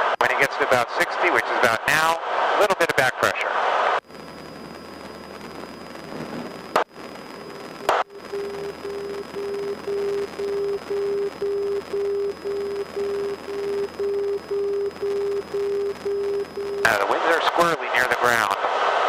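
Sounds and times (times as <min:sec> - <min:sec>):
pulsing electronic beep: 0:07.4 - 0:16.9.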